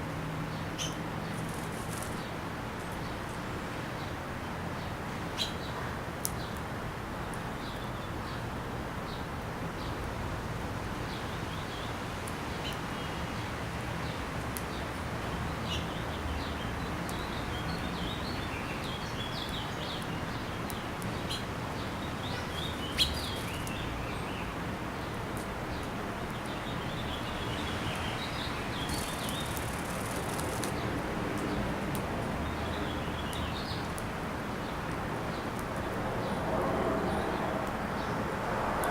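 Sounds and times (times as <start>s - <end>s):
steady background hiss: 0.0s - 38.9s
small birds chirping: 0.5s - 4.2s, 4.8s - 6.6s, 11.0s - 36.4s.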